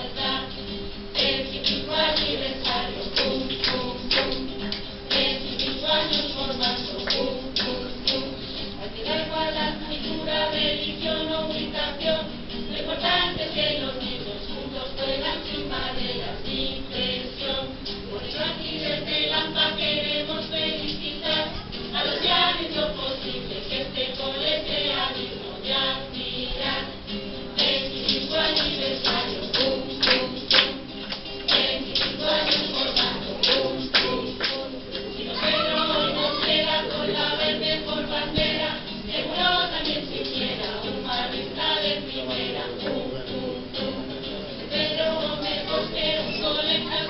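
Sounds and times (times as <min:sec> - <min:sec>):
tambourine struck in rhythm: 0:00.0 - 0:14.2, 0:17.8 - 0:42.3
group singing a carol: 0:00.0 - 0:47.0.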